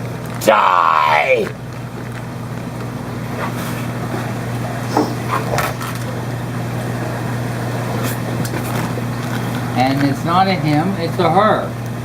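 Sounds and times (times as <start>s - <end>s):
equipment humming: 0.0s - 12.0s.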